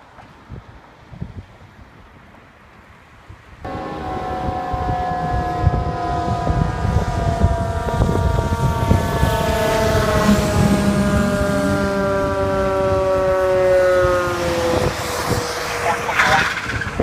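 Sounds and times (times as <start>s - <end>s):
fire truck siren winding: 3.7s - 17.0s
rumble of moving vehicle: 3.7s - 17.0s.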